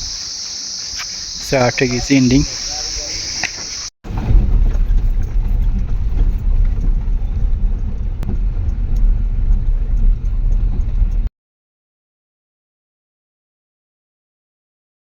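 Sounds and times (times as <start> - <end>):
vehicle rumbling on rough road: 2.5 - 11.3.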